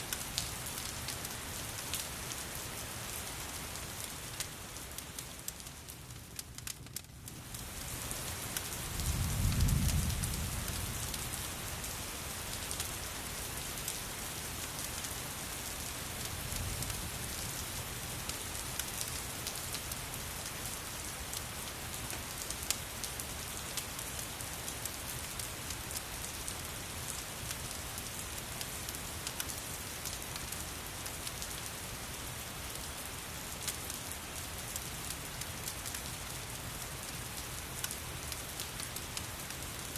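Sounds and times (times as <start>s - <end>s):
steady rain: 0.0s - 39.9s
fireplace crackling: 4.2s - 8.8s.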